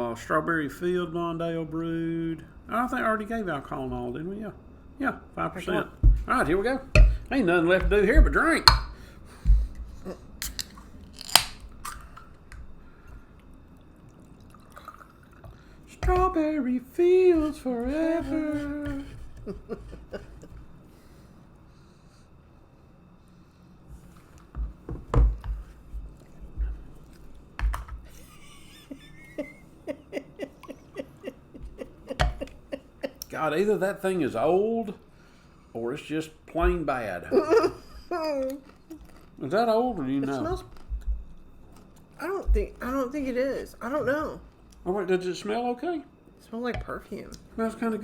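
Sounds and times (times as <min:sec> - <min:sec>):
beer glugging: 0:02.1 - 0:20.9, 0:24.7 - 0:34.0
sharp snap: 0:11.2 - 0:12.0.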